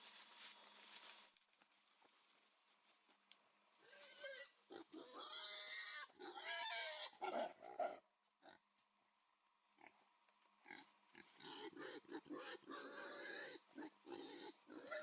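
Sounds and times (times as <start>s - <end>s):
pig squealing: 3.8s - 8.0s, 11.4s - 15.0s
pig grunting: 3.8s - 8.6s, 10.6s - 15.0s.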